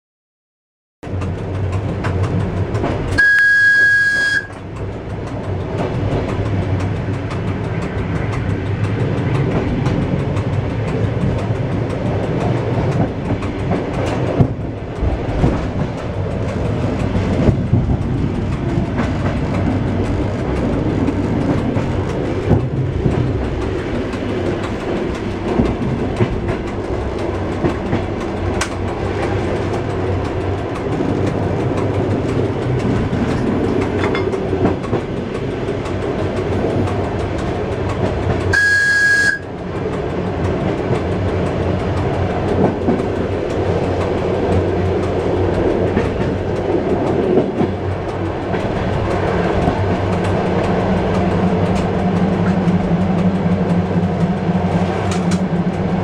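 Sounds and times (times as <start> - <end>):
train rumbling: 1.0 - 56.0
wheels clacking over rails: 1.0 - 56.0
high train horn blast: 3.1 - 4.6, 38.5 - 39.5.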